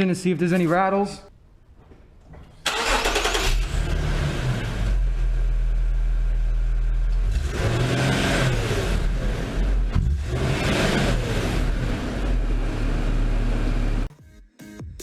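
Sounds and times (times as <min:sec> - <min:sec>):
car engine starting: 0:02.6 - 0:14.1
car engine revving: 0:02.7 - 0:14.1.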